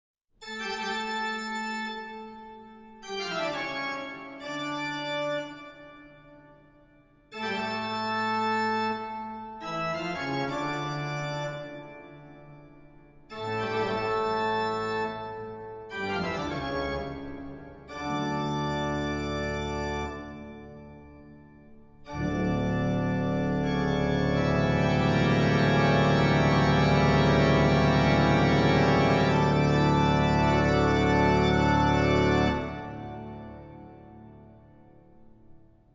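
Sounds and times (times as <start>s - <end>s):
slow organ-like keyboard chords: 7.3s - 35.2s.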